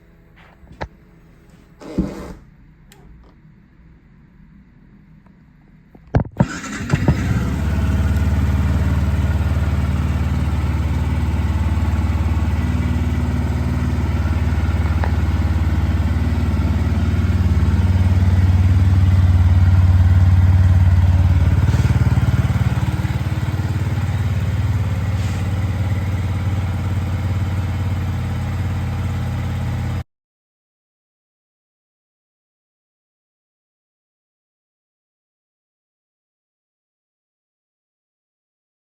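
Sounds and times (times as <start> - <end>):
motorcycle engine starting and idling: 6.4 - 30.0.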